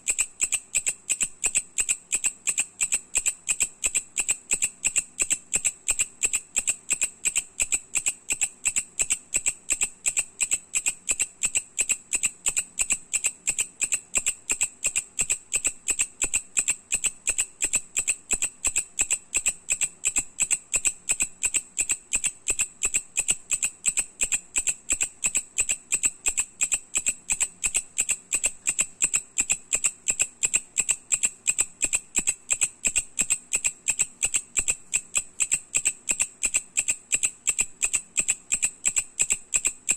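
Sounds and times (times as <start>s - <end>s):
katydid ticking song: 0.0s - 39.9s.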